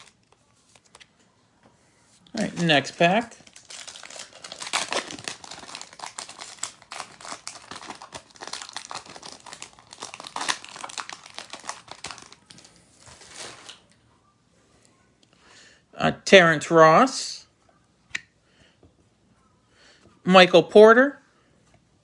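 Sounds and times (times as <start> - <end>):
card pack wrapper tearing: 2.4 - 13.8.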